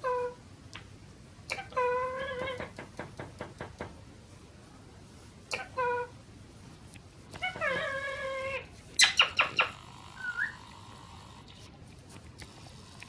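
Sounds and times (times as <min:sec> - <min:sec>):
parrot squawking: 0:01.5 - 0:02.7, 0:05.5 - 0:06.1, 0:07.4 - 0:10.7.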